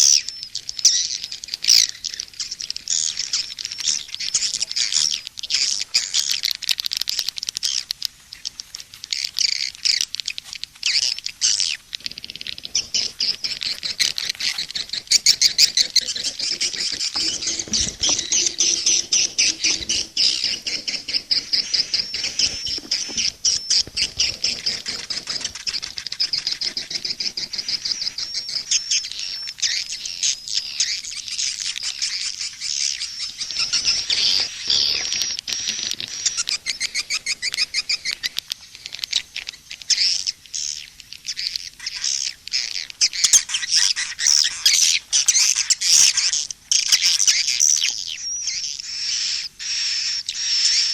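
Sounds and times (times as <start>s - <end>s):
swiftlets twittering: 11.4s - 29.5s.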